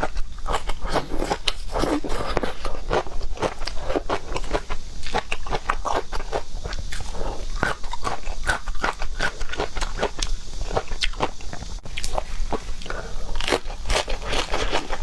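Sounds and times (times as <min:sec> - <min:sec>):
person biting and chewing: 0:00.0 - 0:15.0.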